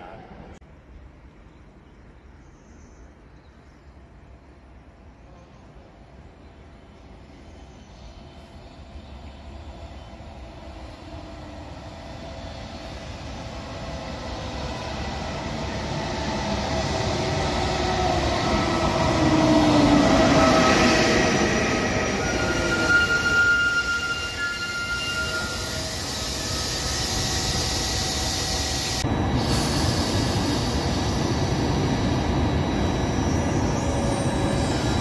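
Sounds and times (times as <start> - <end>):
electric locomotive passing: 8.2 - 35.0
high steady squeal: 14.3 - 35.0.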